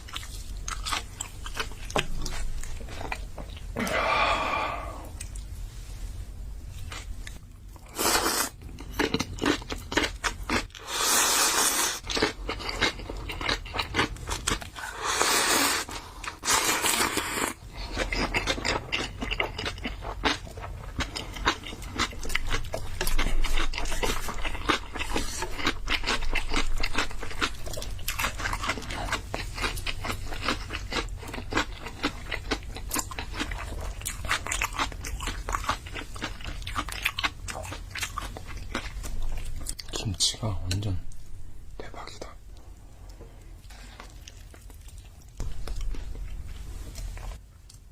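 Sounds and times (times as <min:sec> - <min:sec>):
wet chewing with crunchy clicks: 0:00.0 - 0:03.8, 0:05.1 - 0:05.5, 0:12.0 - 0:14.8, 0:15.9 - 0:41.2, 0:41.8 - 0:47.9
loud noodle slurps: 0:07.9 - 0:08.6, 0:10.8 - 0:12.0, 0:14.8 - 0:17.6.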